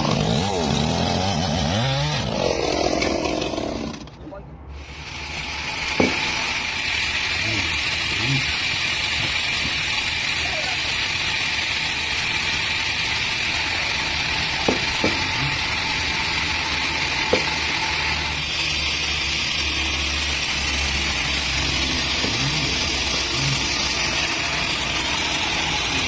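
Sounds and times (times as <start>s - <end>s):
chainsaw engine running: 0.0s - 26.0s
short sharp knocks: 5.8s - 6.4s, 14.6s - 15.6s.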